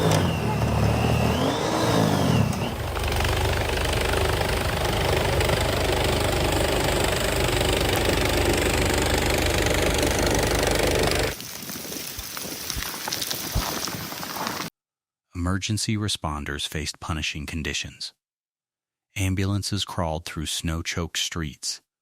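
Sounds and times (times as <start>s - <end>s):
vehicle engine revving and running: 0.0s - 11.4s.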